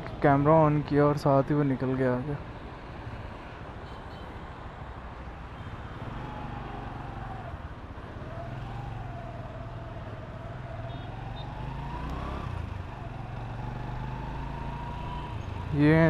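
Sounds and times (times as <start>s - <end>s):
motorcycle engine pulling away: 8.2s - 15.7s.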